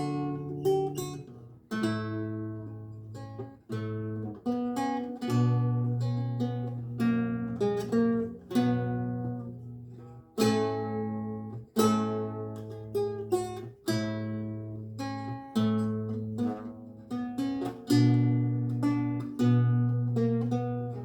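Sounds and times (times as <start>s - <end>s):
lute plucked chords: 0.0s - 21.0s.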